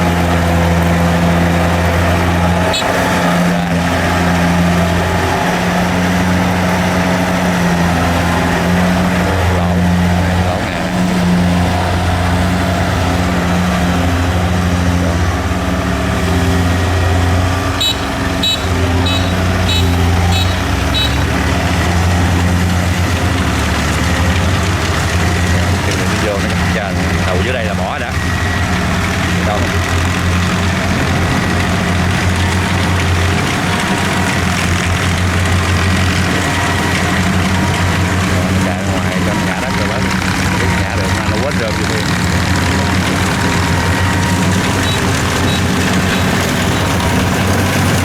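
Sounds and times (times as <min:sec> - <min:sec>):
combine harvester engine droning: 0:00.0 - 0:48.0
high-pitched chirps: 0:17.8 - 0:21.2.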